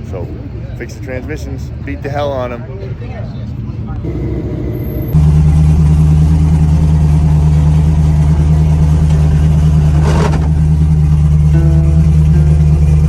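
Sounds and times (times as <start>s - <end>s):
car engine running: 4.0s - 13.0s.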